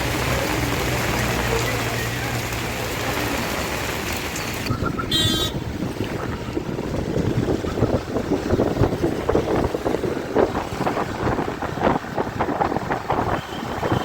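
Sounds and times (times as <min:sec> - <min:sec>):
wind buffeting microphone: 0:04.6 - 0:14.0.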